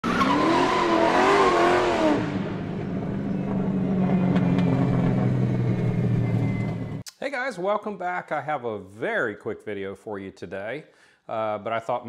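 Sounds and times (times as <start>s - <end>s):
car engine revving: 0.0s - 7.0s.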